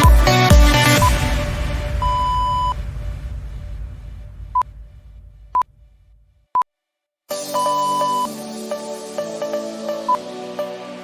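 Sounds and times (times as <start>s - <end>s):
background music: 0.0s - 2.6s, 7.3s - 11.0s
electronic timer beeps: 7.5s - 8.3s.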